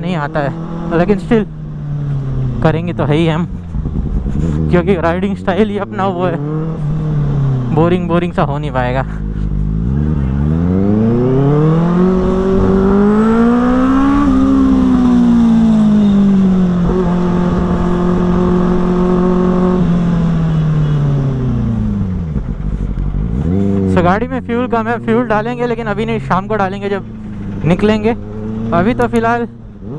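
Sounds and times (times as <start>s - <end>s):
motorcycle engine revving: 0.0s - 29.9s.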